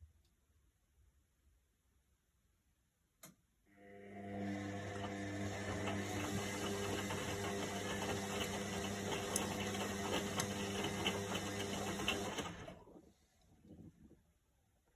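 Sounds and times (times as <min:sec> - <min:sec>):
washing machine motor hum: 0:03.7 - 0:12.9.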